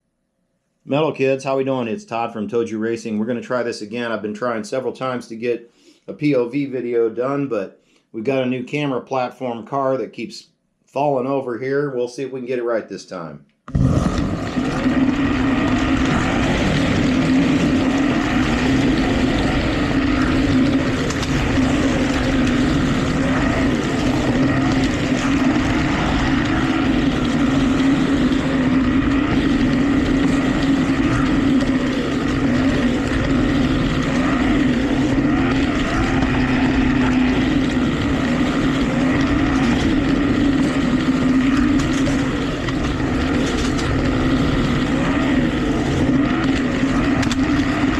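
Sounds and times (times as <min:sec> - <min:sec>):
slot car motor whine: 0:14.1 - 0:47.9.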